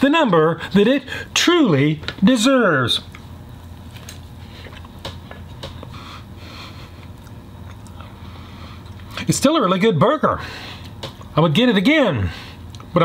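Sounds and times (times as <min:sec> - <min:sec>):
man chewing: 0:03.1 - 0:09.2.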